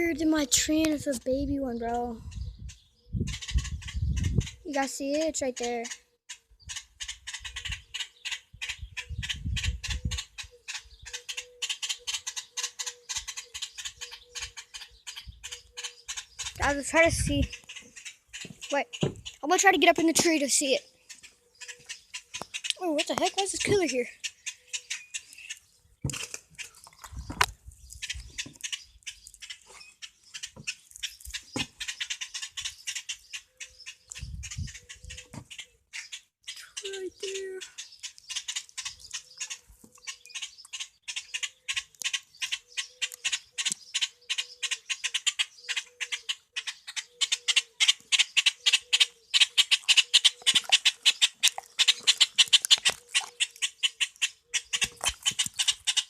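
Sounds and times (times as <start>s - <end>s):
small bird chirping: 0.0s - 56.0s
dry rustling and crackling: 49.8s - 53.8s.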